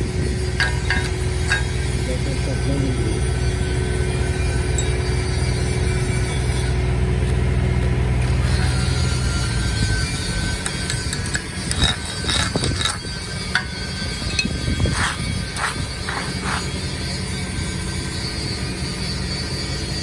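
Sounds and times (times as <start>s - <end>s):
low engine hum: 0.0s - 19.9s
metallic clicks and knocks: 0.6s - 2.0s, 10.6s - 16.7s.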